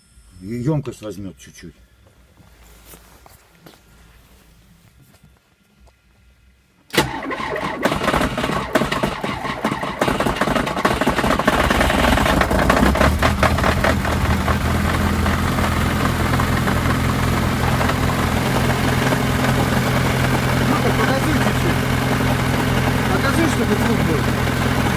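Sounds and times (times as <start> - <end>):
car engine starting and idling: 6.9 - 24.9.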